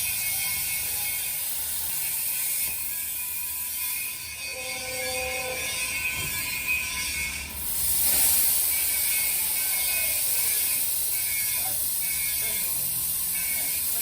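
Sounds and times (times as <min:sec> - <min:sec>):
plasma cutter hissing: 0:00.0 - 0:04.3, 0:05.0 - 0:14.0.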